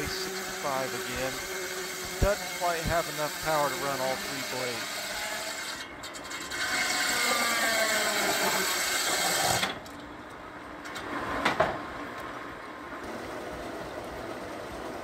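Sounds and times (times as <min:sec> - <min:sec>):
circular saw whine cutting board: 0:00.0 - 0:10.2
sawmill running: 0:00.0 - 0:10.2.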